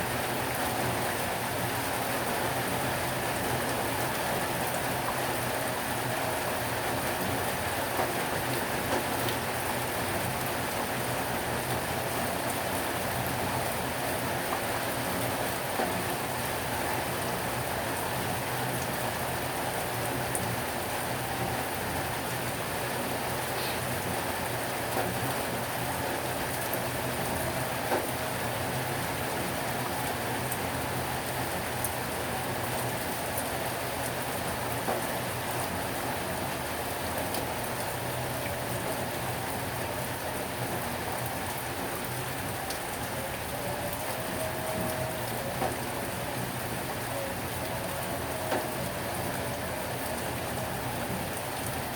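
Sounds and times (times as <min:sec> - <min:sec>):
heavy rain hissing: 0:14.9 - 0:51.9.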